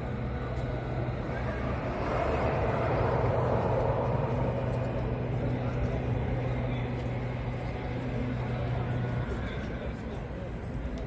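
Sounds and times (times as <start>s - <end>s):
street traffic rumble: 0.0s - 11.0s
vehicle passing: 0.8s - 8.8s.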